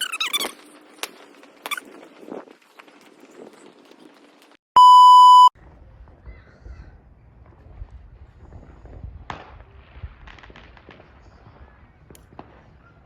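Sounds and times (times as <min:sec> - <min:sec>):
electronic bleep tone: 0:04.8 - 0:05.5.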